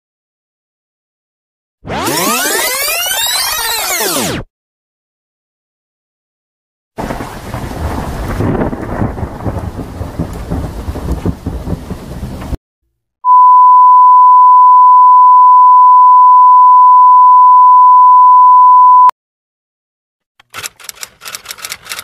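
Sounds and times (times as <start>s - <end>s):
low rumbling thunder: 7.0s - 12.6s
rain: 7.0s - 12.6s
steady sine-wave test tone: 13.3s - 19.1s.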